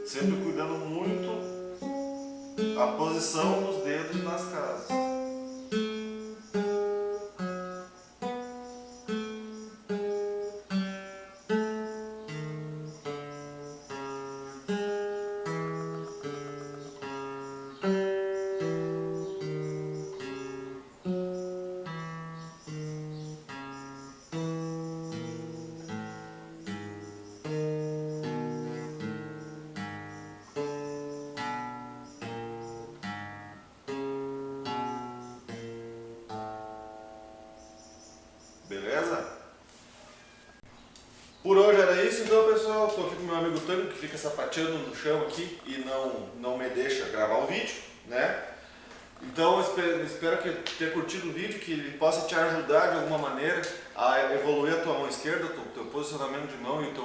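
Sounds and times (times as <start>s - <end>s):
fingerstyle acoustic guitar: 0.0s - 38.7s.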